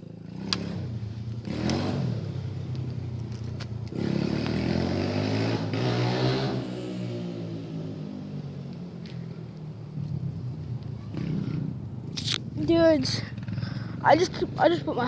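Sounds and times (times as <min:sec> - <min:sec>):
dirt bike engine revving: 0:00.2 - 0:02.6, 0:03.9 - 0:07.6.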